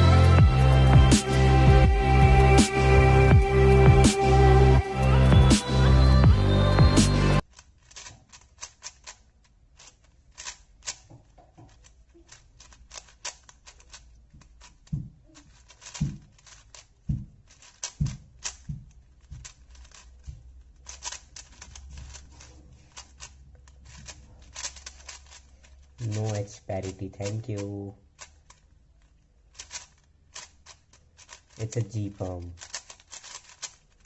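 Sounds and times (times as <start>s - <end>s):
speed cube plastic clicks: 7.4s - 34.0s.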